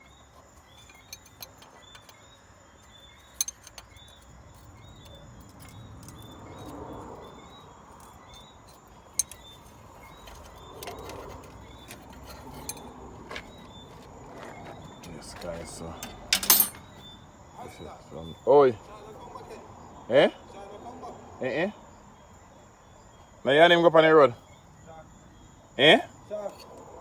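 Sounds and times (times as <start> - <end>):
sharp clinks and clicks: 0.6 - 13.4, 15.0 - 17.0.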